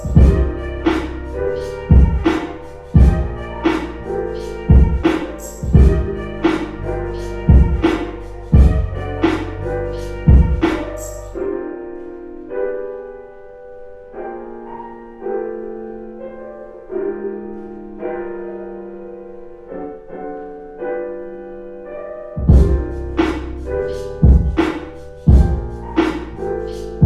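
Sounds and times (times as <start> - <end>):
drum beat with deep bass: 0.0 - 1.1, 1.8 - 3.8, 4.7 - 9.5, 10.1 - 11.1, 22.4 - 23.5, 24.2 - 26.3
mellow keyboard chords: 0.0 - 27.0.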